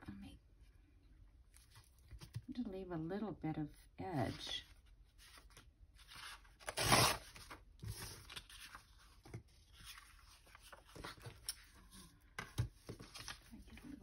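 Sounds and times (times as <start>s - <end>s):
paper rustling: 4.3s - 14.0s
paper tearing: 6.2s - 7.6s.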